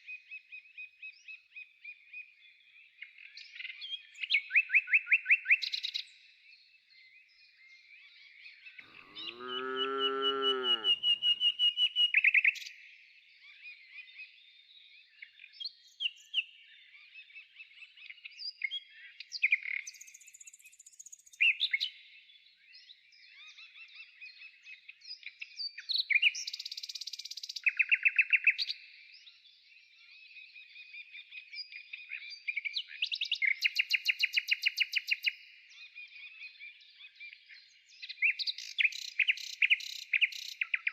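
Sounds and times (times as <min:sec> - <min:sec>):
low animal call: 0:08.8 - 0:11.4
small birds chirping: 0:08.8 - 0:11.5, 0:31.7 - 0:40.9.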